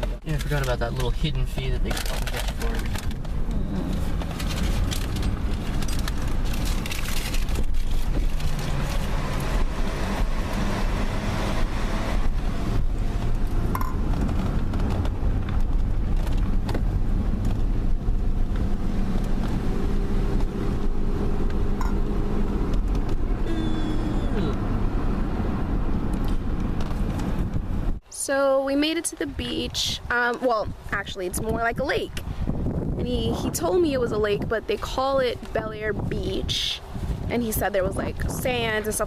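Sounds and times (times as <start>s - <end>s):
car engine hum: 0.0s - 28.1s
road noise: 0.0s - 39.0s.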